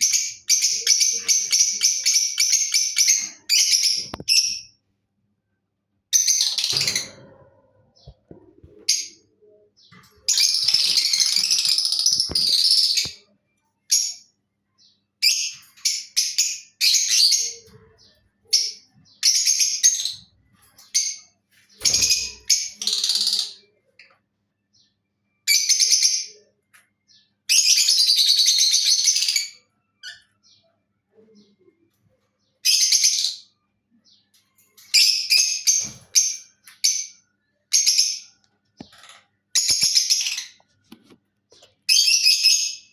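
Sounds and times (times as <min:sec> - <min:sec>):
bird rapid chatter: 0:10.3 - 0:13.0.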